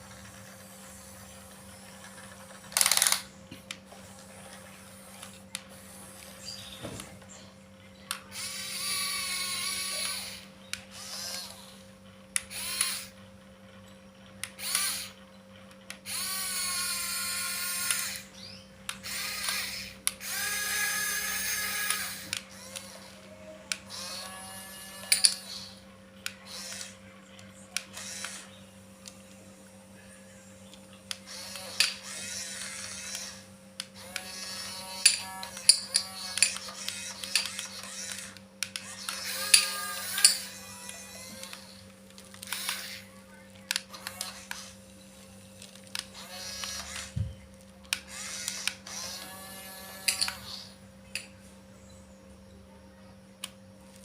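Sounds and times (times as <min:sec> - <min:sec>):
toy gear motors whirring: 0:00.0 - 0:51.4.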